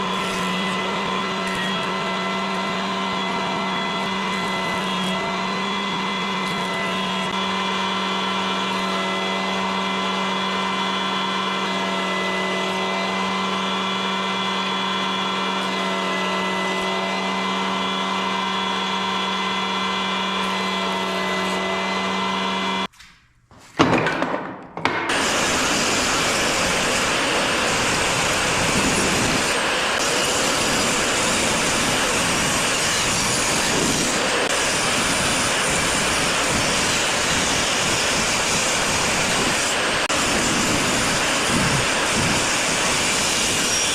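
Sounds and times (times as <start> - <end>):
power tool motor hum: 0.0 - 22.9, 25.1 - 43.9
hissy machine noise: 25.1 - 43.9.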